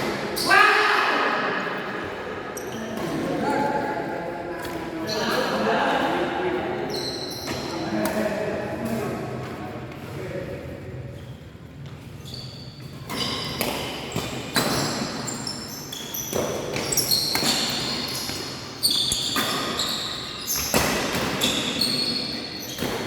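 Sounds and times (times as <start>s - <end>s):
court shoes squeaking: 2.4s - 23.0s.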